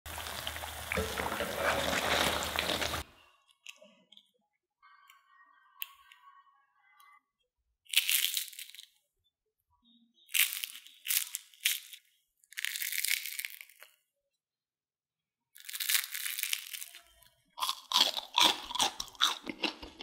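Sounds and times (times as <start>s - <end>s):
food sizzling in hot oil: 0.0s - 3.0s
crispy snack crunching: 0.1s - 3.8s, 7.9s - 8.9s, 10.3s - 14.0s, 15.6s - 20.0s.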